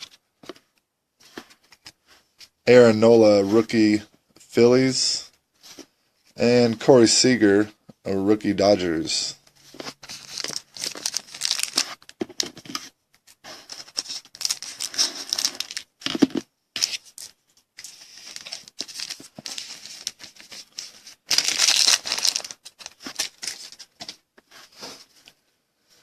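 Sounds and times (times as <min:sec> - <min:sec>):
card pack wrappers crinkling: 0:09.8 - 0:12.8, 0:13.7 - 0:24.2.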